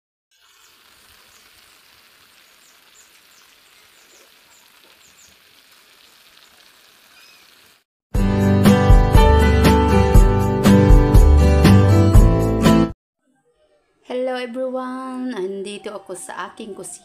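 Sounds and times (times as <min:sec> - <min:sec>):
mushrooms sizzling in oil: 0:00.3 - 0:07.8.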